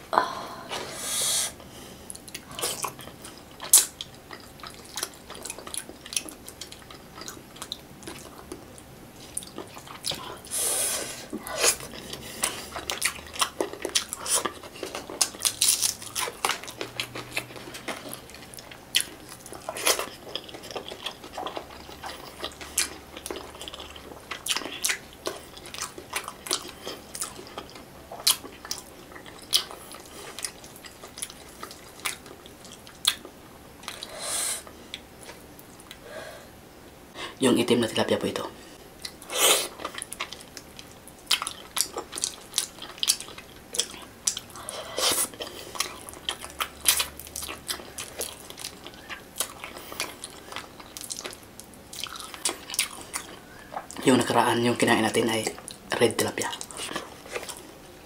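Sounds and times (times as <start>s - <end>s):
wet chewing and lip smacks: 11.7s - 34.1s, 39.0s - 54.5s.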